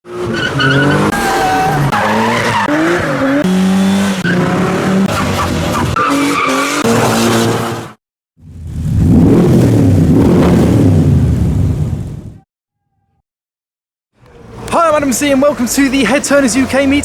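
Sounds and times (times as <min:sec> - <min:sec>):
car engines revving: 0:00.0 - 0:12.4.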